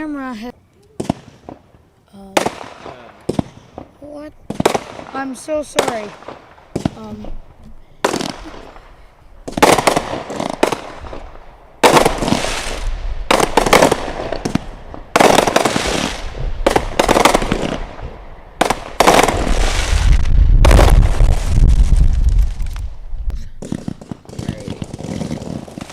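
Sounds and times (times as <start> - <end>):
firework crackling: 0.8 - 25.9
firework bangs: 1.0 - 25.9
low rumble: 19.4 - 23.4.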